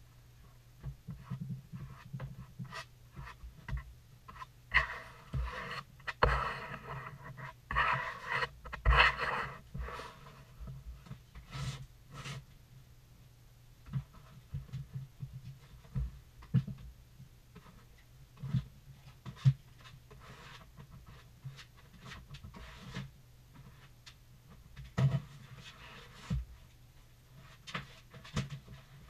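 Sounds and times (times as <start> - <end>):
rough scrapes: 4.3 - 10.6.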